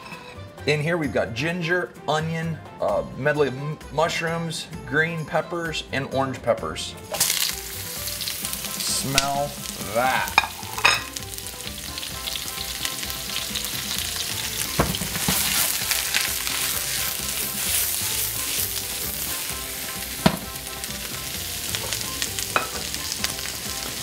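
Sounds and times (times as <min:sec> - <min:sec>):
vegetables sizzling in a wok: 0:07.0 - 0:24.0.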